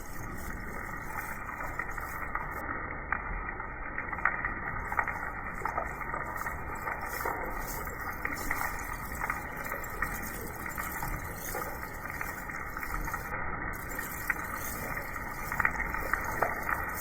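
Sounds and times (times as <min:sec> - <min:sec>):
steady rainfall: 0:04.3 - 0:17.0.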